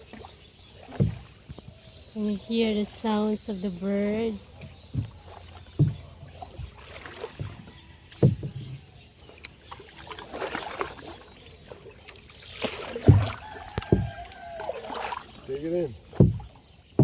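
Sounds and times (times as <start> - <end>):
paddles splashing in water: 0.0 - 17.0
dull thumps: 0.9 - 1.7, 4.5 - 8.8, 12.9 - 14.4, 16.0 - 17.0.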